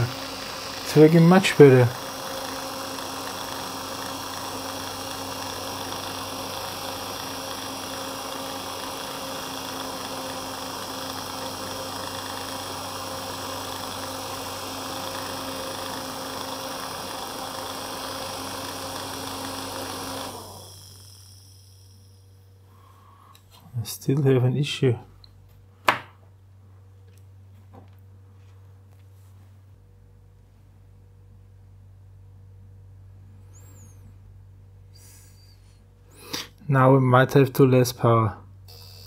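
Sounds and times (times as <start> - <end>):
electric motor humming: 0.0 - 22.6, 38.7 - 39.0
fan rushing air: 0.0 - 38.7.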